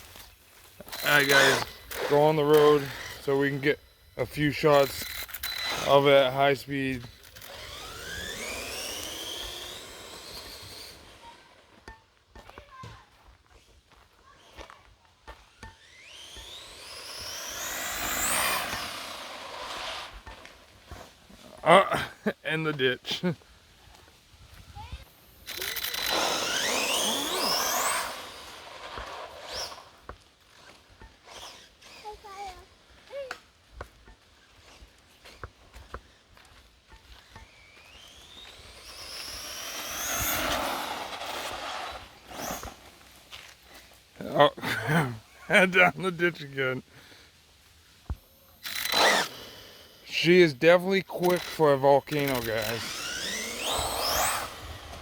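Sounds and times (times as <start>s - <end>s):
rc truck electric motor whining: 0.0s - 11.8s, 15.3s - 21.8s, 24.8s - 33.4s, 37.1s - 47.2s, 48.1s - 55.0s
tyre noise on pavement: 26.6s - 46.1s.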